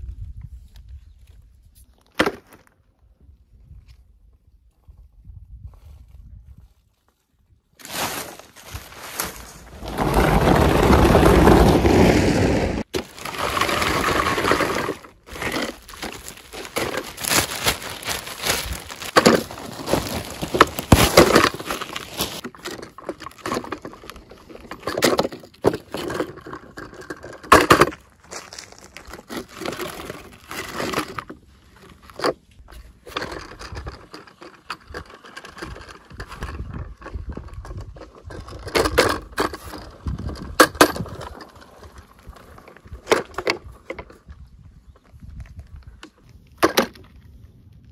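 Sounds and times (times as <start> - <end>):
plastic wrapping crinkling: 13.0 - 22.4.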